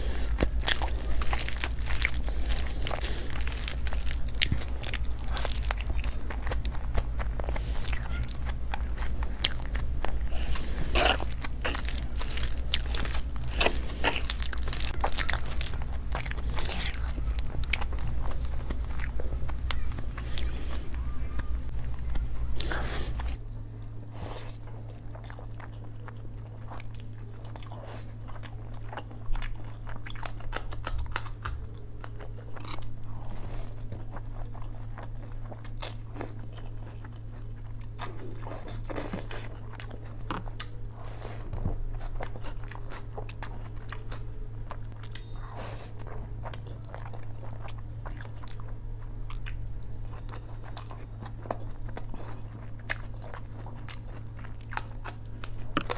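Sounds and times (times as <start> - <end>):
person chewing and crunching: 0.0 - 55.9
steady low hum: 0.0 - 55.9.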